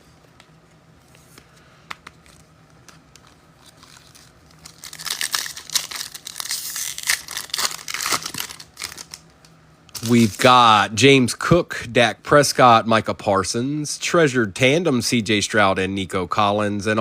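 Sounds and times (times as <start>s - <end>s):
foil wrapper tearing and crinkling: 3.2s - 9.3s, 10.0s - 10.5s.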